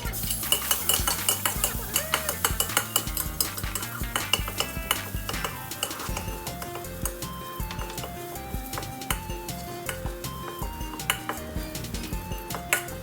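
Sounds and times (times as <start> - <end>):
food sizzling in hot oil: 0.0 - 11.7
background music: 0.0 - 13.0
spatula scraping a pan: 0.1 - 7.0.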